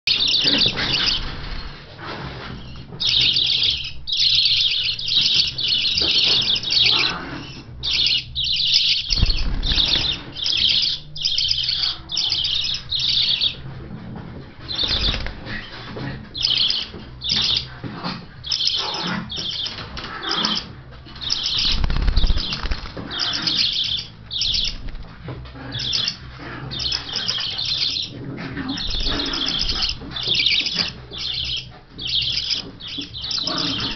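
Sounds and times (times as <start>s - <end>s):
budgerigars chirping and chattering: 0.1s - 1.8s, 2.4s - 13.8s, 14.4s - 33.9s
wings flapping: 9.1s - 10.7s, 14.7s - 15.8s, 19.5s - 23.5s.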